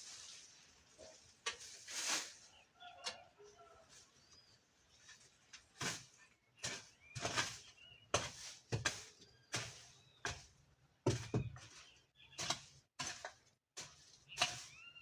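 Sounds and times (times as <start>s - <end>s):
hand tool scraping weeds and soil: 0.0s - 3.2s, 4.0s - 15.0s.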